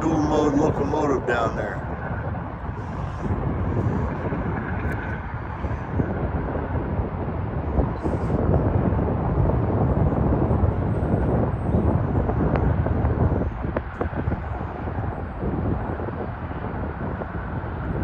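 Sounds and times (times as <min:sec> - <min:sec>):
distant diesel locomotive rumble: 0:00.0 - 0:06.7.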